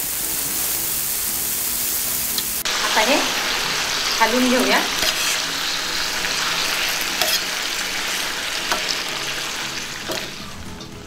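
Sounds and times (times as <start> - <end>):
chicken sizzling in hot oil: 0.0 - 11.0
spoon stirring: 4.0 - 10.4.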